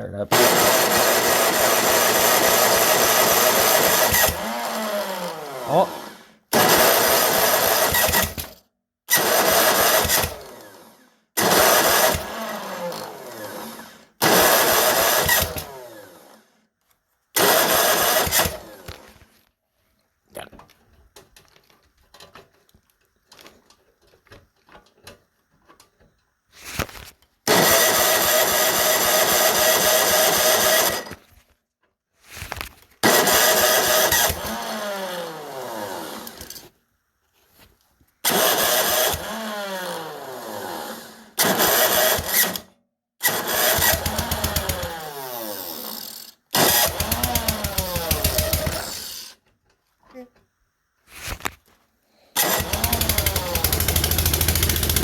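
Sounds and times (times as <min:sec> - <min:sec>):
snowblower engine cranking: 0:00.3 - 0:16.4, 0:17.4 - 0:19.2, 0:27.4 - 0:31.3, 0:33.0 - 0:36.7, 0:38.2 - 0:49.4, 0:52.4 - 0:55.0
engine bursts spinning down: 0:52.4 - 0:55.0.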